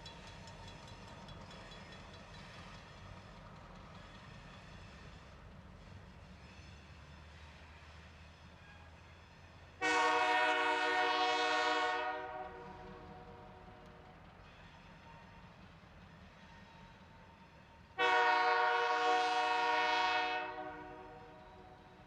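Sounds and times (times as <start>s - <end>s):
freight train rumbling: 0.0s - 22.0s
locomotive air horn blast: 9.8s - 12.6s, 18.0s - 21.4s.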